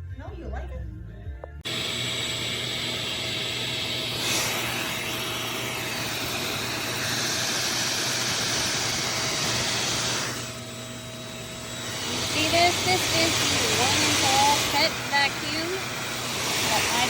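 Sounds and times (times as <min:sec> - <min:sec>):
vacuum motor whine with suction hiss: 0:01.6 - 0:17.0.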